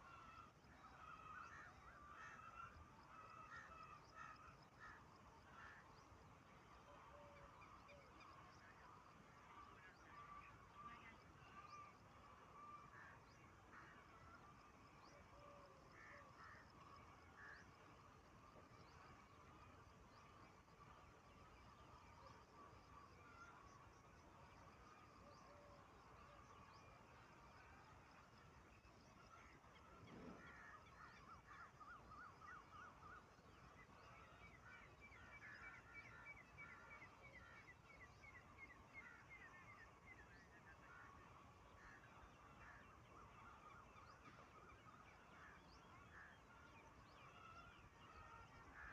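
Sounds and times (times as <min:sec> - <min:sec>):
faint bird calls: 0:00.0 - 0:48.9
faint harsh bird calls: 0:24.7 - 0:48.9.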